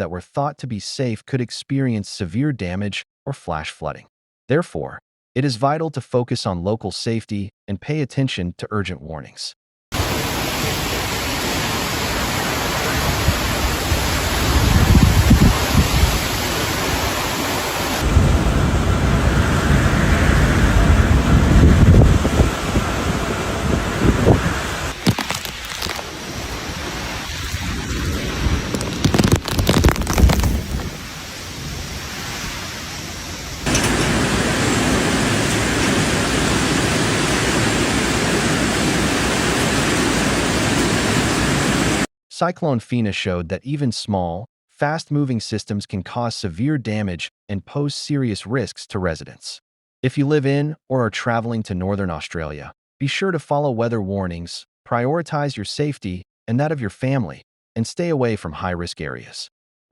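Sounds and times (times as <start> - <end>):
heavy rain: 10.0 - 42.1
loud crackling burst: 10.0 - 42.1
wind: 10.0 - 42.1
gusts buffeting microphone: 12.1 - 25.0, 26.1 - 37.8.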